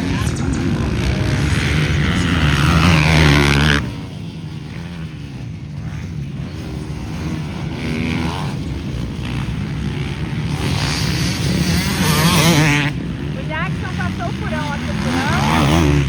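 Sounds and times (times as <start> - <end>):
motocross bike engines revving: 0.0 - 16.0.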